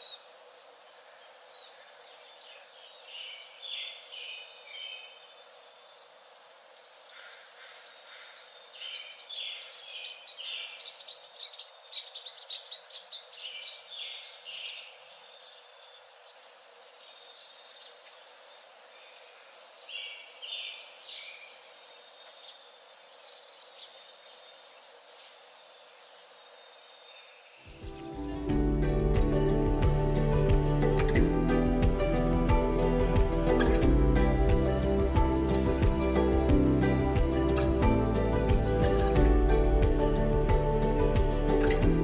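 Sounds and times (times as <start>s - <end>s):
small birds chirping: 0.0s - 28.5s
steady outdoor hiss: 0.0s - 42.0s.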